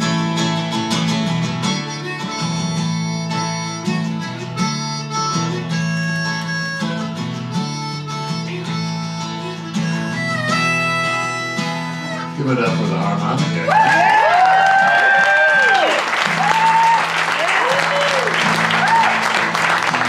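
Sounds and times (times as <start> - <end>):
strummed acoustic guitar: 0.0 - 13.7, 16.2 - 20.0
harmonica solo: 0.0 - 20.0.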